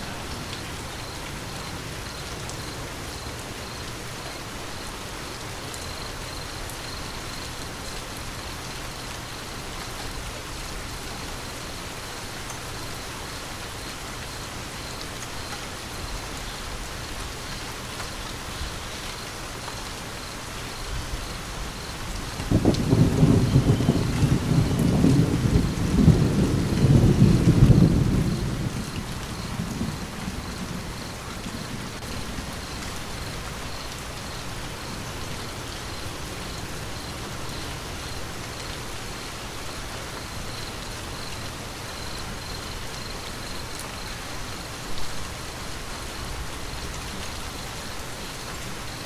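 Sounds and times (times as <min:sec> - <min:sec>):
steady rain: 0:00.0 - 0:49.0
low rumble of thunder: 0:20.9 - 0:38.2.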